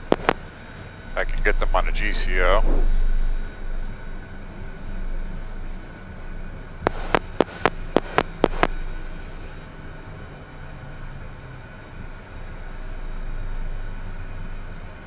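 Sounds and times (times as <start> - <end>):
rapid sharp clicks: 0.0 - 0.4, 6.8 - 8.7
cockpit hum: 0.0 - 15.0.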